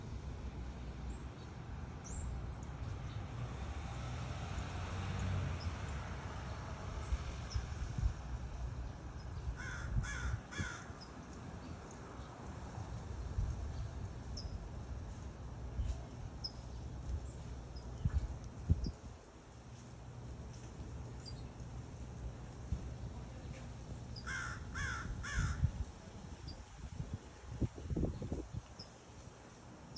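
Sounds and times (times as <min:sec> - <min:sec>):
steady low rumble: 0:06.9 - 0:29.8
crow cawing: 0:09.6 - 0:11.0, 0:24.2 - 0:25.7.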